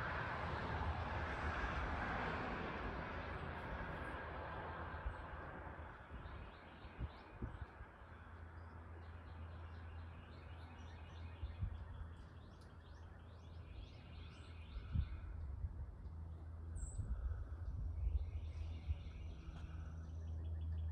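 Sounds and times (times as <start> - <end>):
low outdoor rumble: 0.0 - 20.9
songbirds chirping: 3.1 - 20.9.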